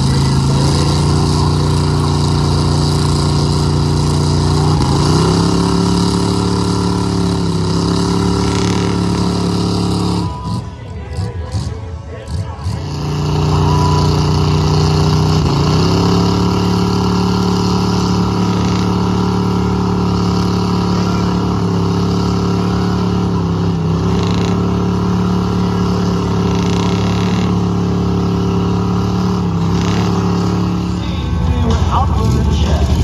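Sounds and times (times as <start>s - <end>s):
truck engine at high revs: 0.0s - 33.0s.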